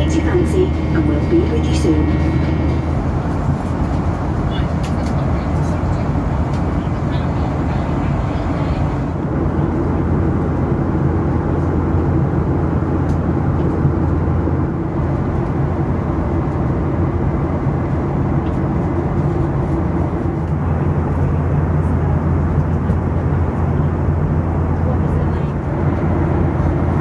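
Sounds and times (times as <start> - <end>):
low even hum: 0.0 - 9.2
airplane cabin engine noise: 0.0 - 27.0.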